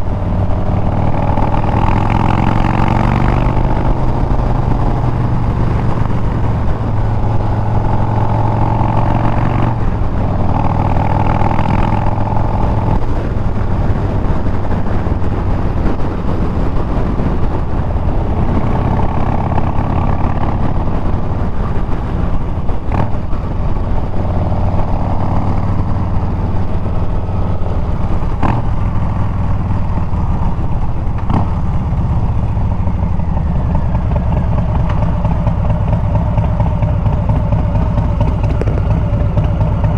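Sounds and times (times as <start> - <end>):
motorcycle engine while riding: 0.0 - 39.9.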